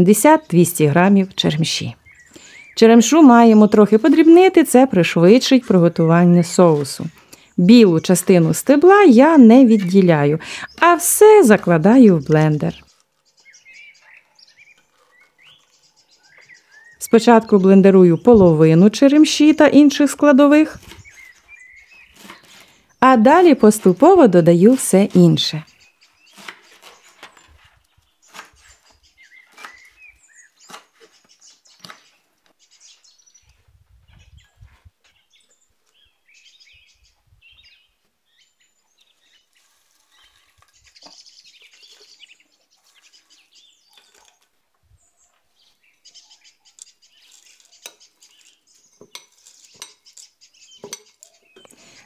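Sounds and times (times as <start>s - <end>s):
kitchen utensils clicking and tapping: 49.0s - 51.4s.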